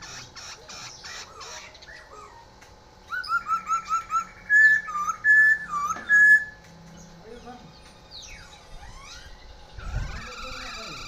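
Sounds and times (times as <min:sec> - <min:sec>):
songbird chirping and whistling: 0:00.0 - 0:11.0.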